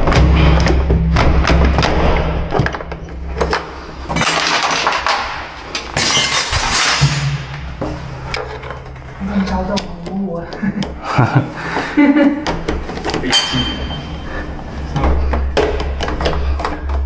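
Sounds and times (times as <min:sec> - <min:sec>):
scraping and rattling: 0:00.0 - 0:10.2.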